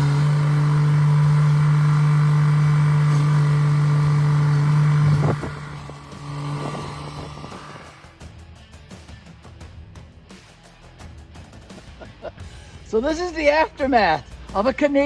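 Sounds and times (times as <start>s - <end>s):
engine humming: 0.0s - 8.2s.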